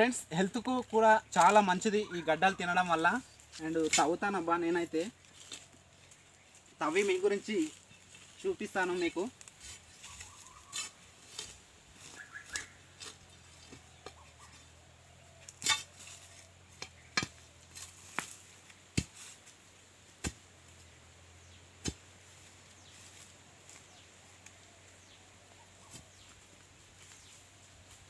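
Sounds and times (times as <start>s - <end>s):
metal bar striking hard ground: 15.5s - 17.4s.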